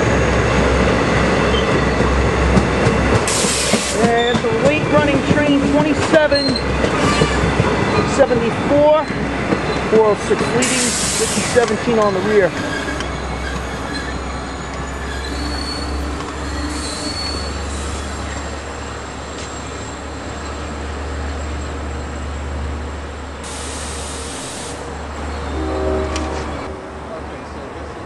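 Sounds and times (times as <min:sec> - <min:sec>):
train rumbling: 0:00.0 - 0:28.0
train wheels squealing: 0:01.4 - 0:02.2, 0:03.4 - 0:04.5, 0:06.2 - 0:08.2, 0:10.8 - 0:22.5.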